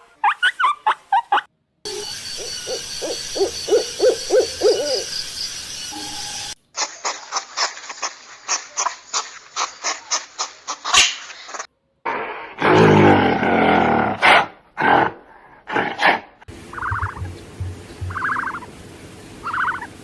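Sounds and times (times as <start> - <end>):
owl hooting: 1.9 - 6.6, 16.7 - 18.7, 19.4 - 20.0
background hiss: 16.5 - 20.0
sharp clicky animal calls: 16.8 - 18.7, 19.4 - 19.9.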